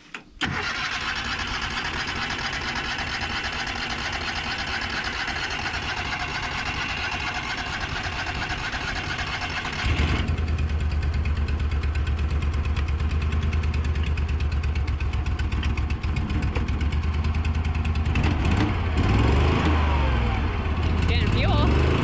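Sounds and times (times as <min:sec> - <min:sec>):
engine idling: 0:00.4 - 0:22.0.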